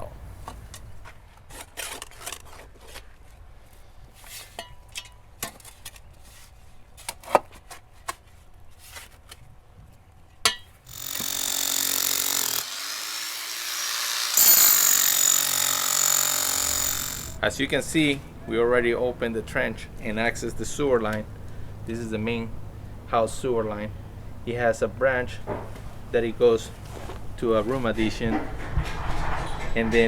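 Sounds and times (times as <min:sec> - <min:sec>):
scrapes and knocks of digging: 0:00.4 - 0:09.5, 0:25.5 - 0:30.0
power tool running loudly: 0:10.9 - 0:17.4.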